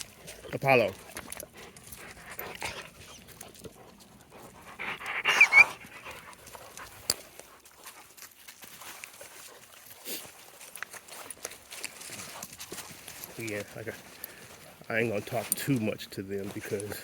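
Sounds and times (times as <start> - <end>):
dog panting: 0.0 - 17.0
dog whining: 4.9 - 5.9.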